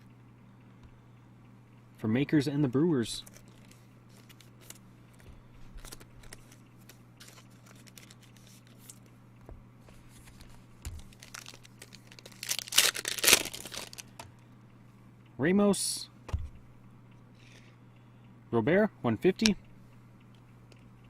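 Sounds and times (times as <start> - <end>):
cards clicking and rustling: 3.2 - 9.1, 9.9 - 14.2
wrapper crinkling and tearing: 5.8 - 9.0, 10.3 - 14.2.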